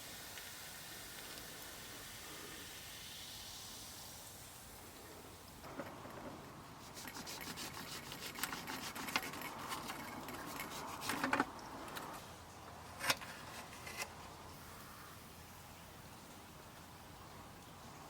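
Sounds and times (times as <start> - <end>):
handling noise rubbing and rustling: 5.6 - 14.4.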